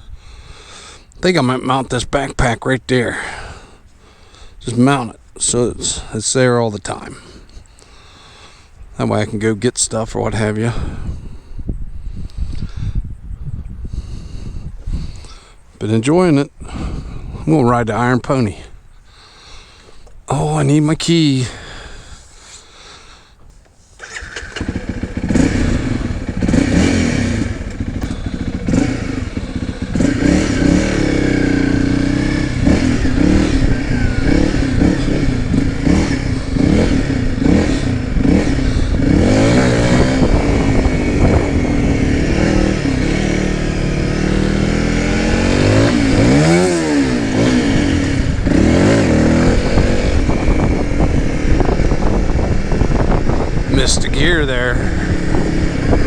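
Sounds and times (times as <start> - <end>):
motorcycle engine accelerating: 24.0 - 56.0.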